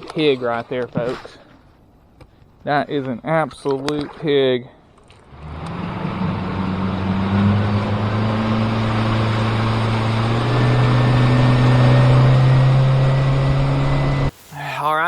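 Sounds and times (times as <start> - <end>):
boat motor humming: 5.2 - 14.3
steady hiss: 14.3 - 15.0.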